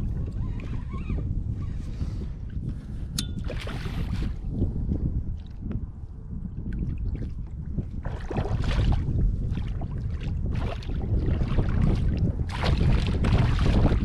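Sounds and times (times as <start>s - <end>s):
wind rumble on microphone: 0.0s - 14.0s
water splashing and sloshing: 2.7s - 4.6s, 6.5s - 14.0s.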